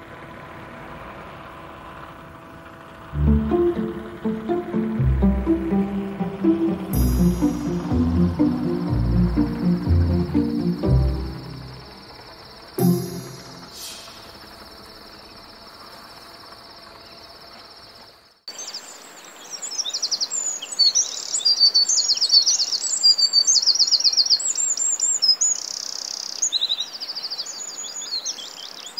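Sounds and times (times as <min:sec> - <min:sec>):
faint high-pitched trill: 0:12.8 - 0:13.9
birdsong chirps and trills: 0:18.5 - 0:28.9.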